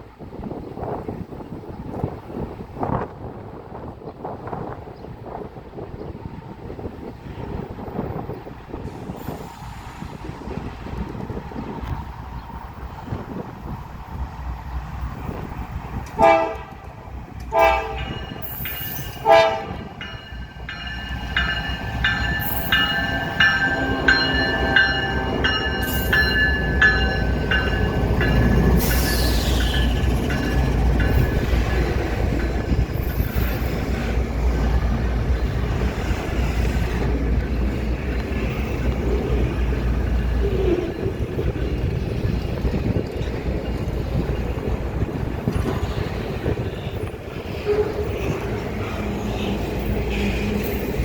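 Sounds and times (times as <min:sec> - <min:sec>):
low rumble of train moving: 0:00.0 - 0:51.0
locomotive horn blasts: 0:16.1 - 0:18.4, 0:19.2 - 0:20.0, 0:23.2 - 0:25.6, 0:47.5 - 0:48.4
bell ringing quickly: 0:20.1 - 0:29.8.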